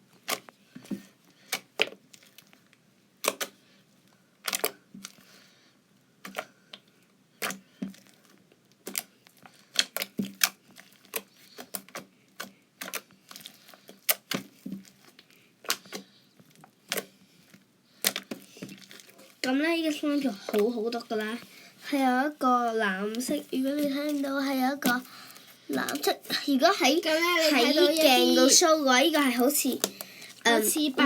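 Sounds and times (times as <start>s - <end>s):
slime popping and clicking: 3.2s - 3.6s, 4.4s - 4.8s, 7.4s - 7.6s.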